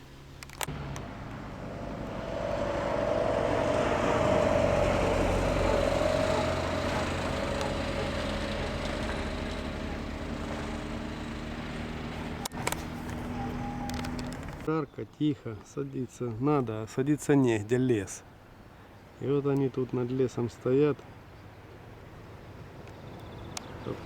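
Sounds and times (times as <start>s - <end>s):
motor vehicle passing: 0.2s - 14.7s.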